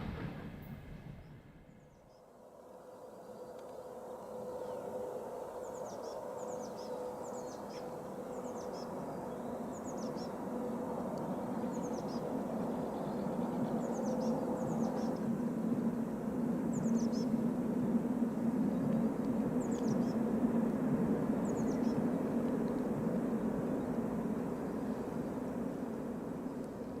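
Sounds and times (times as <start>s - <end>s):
steady hum: 0.0s - 1.8s
low rumble: 0.0s - 2.0s.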